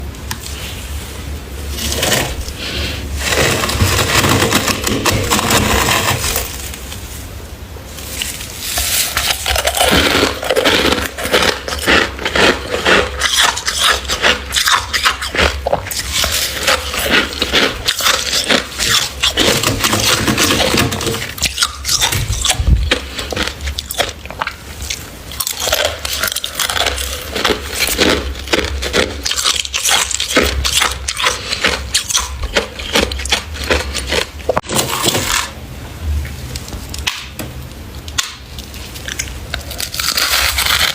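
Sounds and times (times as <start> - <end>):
crunchy frost being eaten: 8.1 - 35.6, 38.2 - 40.9.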